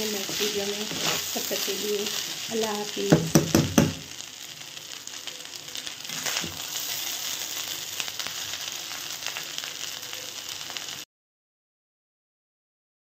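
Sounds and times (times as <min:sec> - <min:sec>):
rice sizzling in a pan: 0:00.0 - 0:11.1.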